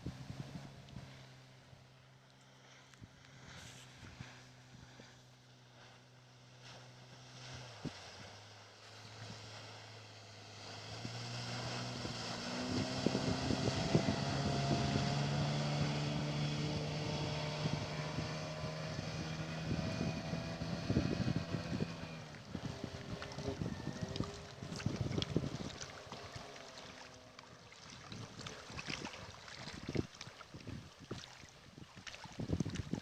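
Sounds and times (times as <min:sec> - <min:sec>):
outboard motor humming: 0:00.0 - 0:33.0.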